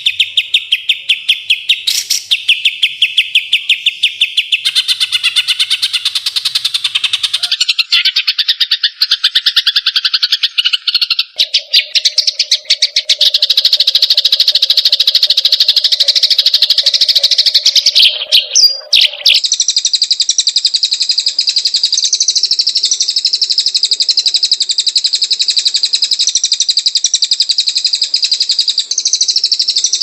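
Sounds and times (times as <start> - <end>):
songbird singing: 0.0 - 30.0.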